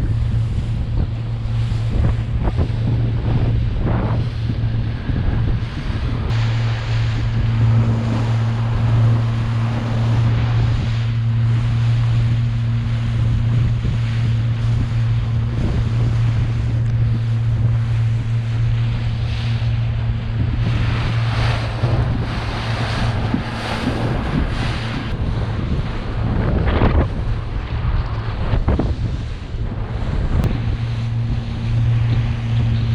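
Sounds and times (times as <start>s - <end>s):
boat motor running: 0.0s - 32.9s
water rushing past hull: 0.0s - 32.9s
wind buffeting microphone: 0.0s - 32.9s.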